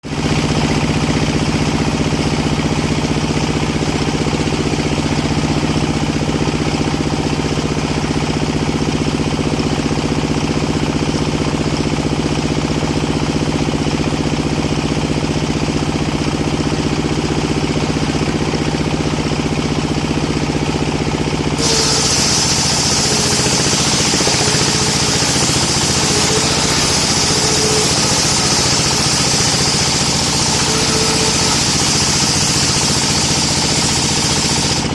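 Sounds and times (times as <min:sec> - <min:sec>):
sawmill engine running: 0:00.0 - 0:34.9
bright hiss: 0:21.6 - 0:34.9.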